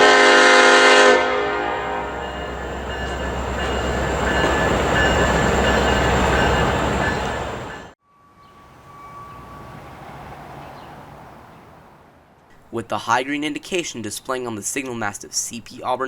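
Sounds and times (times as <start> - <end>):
locomotive horn blast: 0.0 - 7.9
passing train rumble: 0.0 - 13.1.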